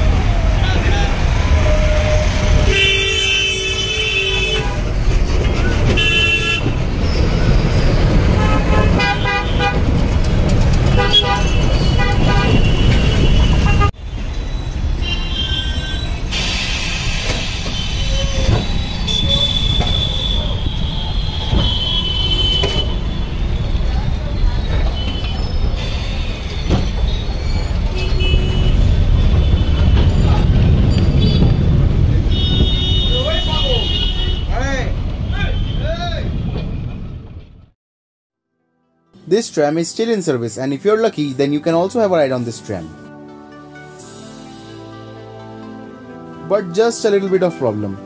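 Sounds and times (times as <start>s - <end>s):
traffic engine rumble: 0.0s - 37.8s
car horns honking: 2.1s - 5.0s, 5.8s - 6.8s, 8.2s - 14.0s, 17.8s - 23.3s, 27.9s - 34.6s.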